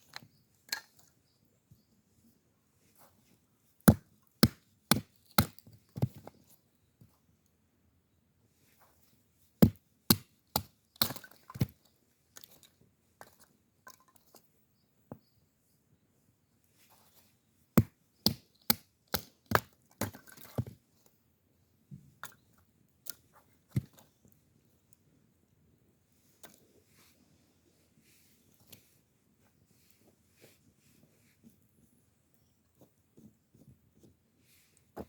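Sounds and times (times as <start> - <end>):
axe chopping firewood: 3.9 - 6.2, 9.6 - 11.8, 17.8 - 20.7.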